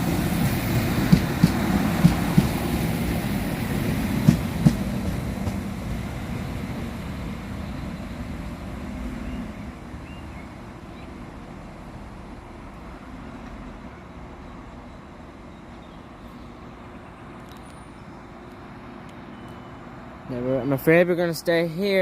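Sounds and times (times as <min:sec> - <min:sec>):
train rumble: 0:00.0 - 0:22.0
wheels knocking over rail joints: 0:04.2 - 0:05.6.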